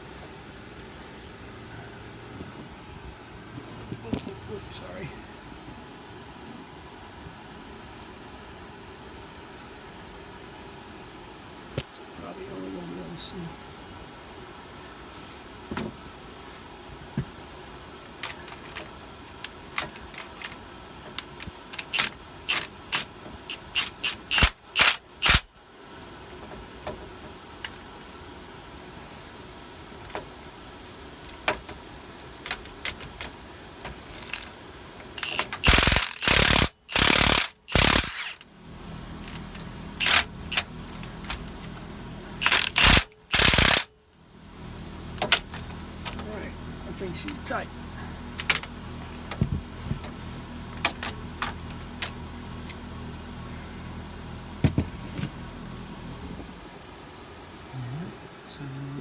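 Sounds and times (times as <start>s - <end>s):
ratchet clicks: 21.2s - 25.5s, 34.2s - 34.5s, 35.2s - 38.5s, 40.0s - 41.4s, 42.4s - 43.9s
pneumatic impact wrench bursts: 21.7s - 25.5s, 34.2s - 34.5s, 35.2s - 38.4s, 40.0s - 41.4s, 42.4s - 43.9s.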